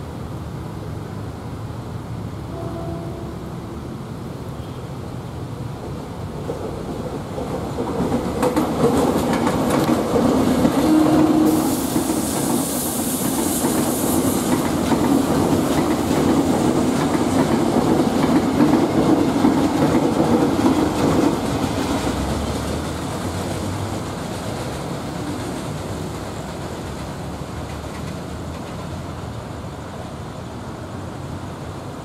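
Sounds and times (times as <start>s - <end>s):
train wheels clattering on rails: 5.8s - 29.5s
high hiss: 10.9s - 16.8s.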